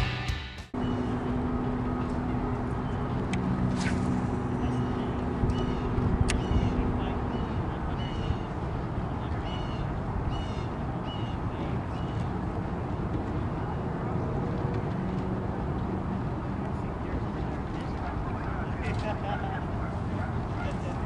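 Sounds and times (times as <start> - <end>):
low hum: 0.0 - 11.0
low rumble of open-air noise: 0.0 - 21.0
bird calling: 4.4 - 8.7, 9.4 - 12.3.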